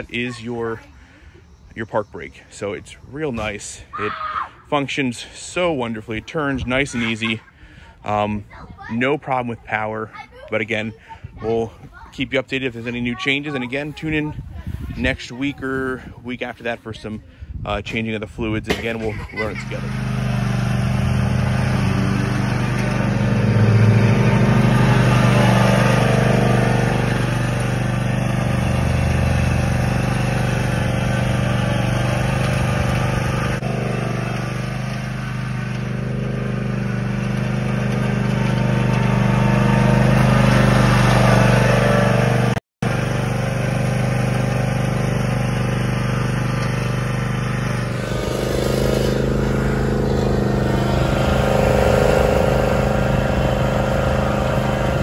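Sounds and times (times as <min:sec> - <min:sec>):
mower engine running: 0:18.7 - 0:55.0.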